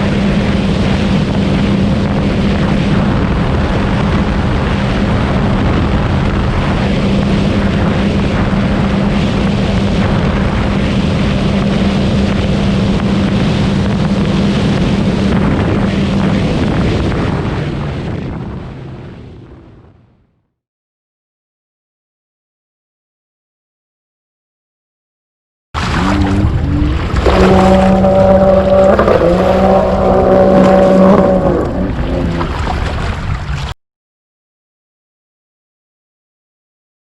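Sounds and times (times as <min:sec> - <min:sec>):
personal watercraft engine running: 0:00.0 - 0:19.9, 0:25.8 - 0:33.8
loud rush of noise: 0:25.8 - 0:33.7.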